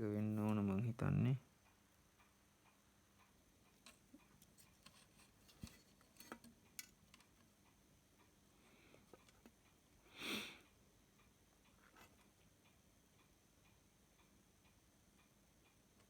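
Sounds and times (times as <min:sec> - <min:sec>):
person sniffing: 0:10.1 - 0:10.6.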